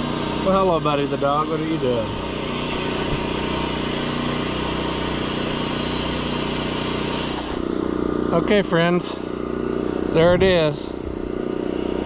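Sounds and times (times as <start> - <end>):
air compressor hiss: 0.0 - 7.7
small gasoline engine running: 0.0 - 12.0.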